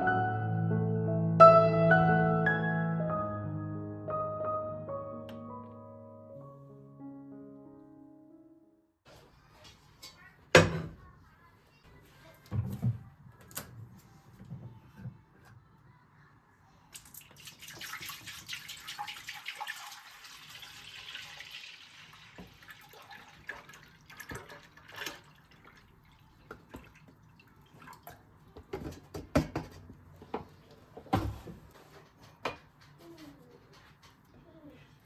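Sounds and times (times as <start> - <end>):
water dripping: 16.9 - 28.2
kitchen tap running: 17.0 - 28.2
knocks of things being handled: 28.6 - 33.1.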